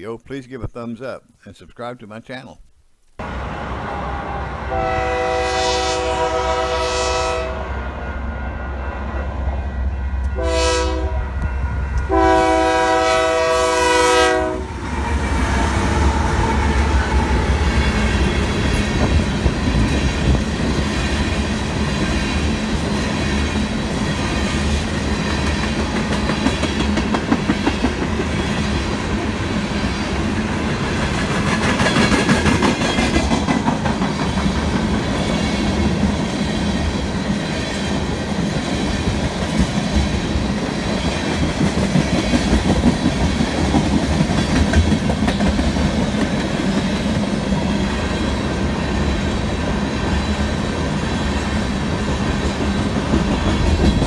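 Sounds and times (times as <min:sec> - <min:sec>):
train rumbling past: 0:03.2 - 0:54.0
locomotive air horn blasts: 0:03.6 - 0:08.8, 0:10.3 - 0:17.8.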